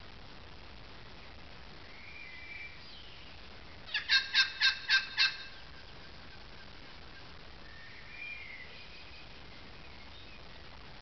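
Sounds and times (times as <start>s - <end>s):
bird calling loud notes: 3.9s - 10.4s.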